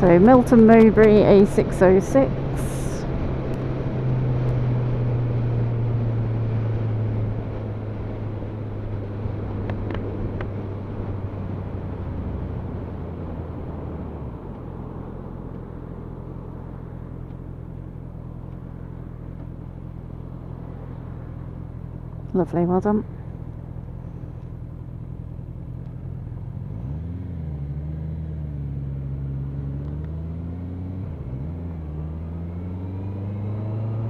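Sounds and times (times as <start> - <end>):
motorcycle engine: 0.0 - 34.0
road noise: 0.0 - 34.0.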